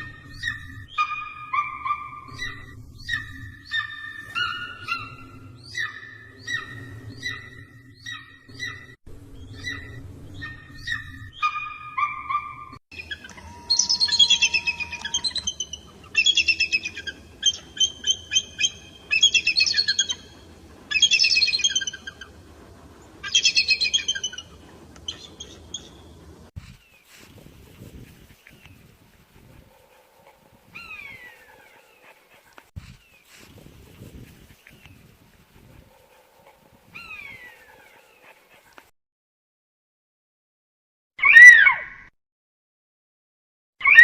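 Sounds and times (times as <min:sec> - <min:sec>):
eagle calls: 0:09.6 - 0:26.4.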